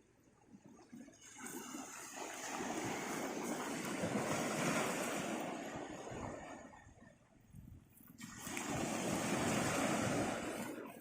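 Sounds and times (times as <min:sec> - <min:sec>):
wave washing on shore: 0:01.2 - 0:07.1, 0:08.2 - 0:11.0.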